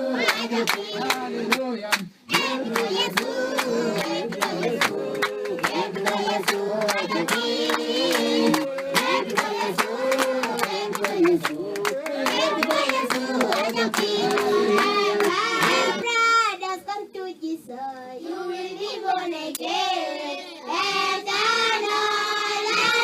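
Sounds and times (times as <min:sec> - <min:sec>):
group singing together: 0:00.0 - 0:16.1, 0:17.9 - 0:23.0
hand clapping: 0:00.2 - 0:15.8.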